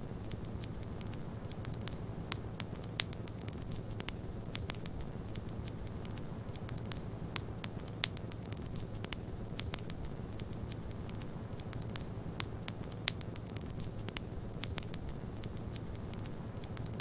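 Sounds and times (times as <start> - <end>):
fireplace fire crackling: 0.0 - 17.0
low fire rumble: 0.0 - 17.0.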